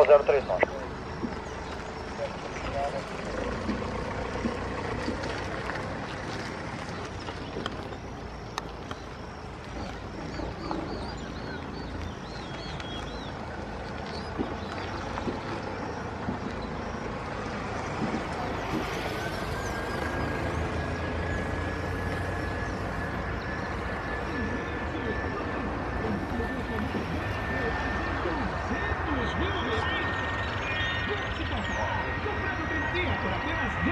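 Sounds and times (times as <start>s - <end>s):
jet engine whine: 0.0s - 33.9s
jet engines roaring: 0.0s - 33.9s
bird chirps: 6.3s - 33.9s.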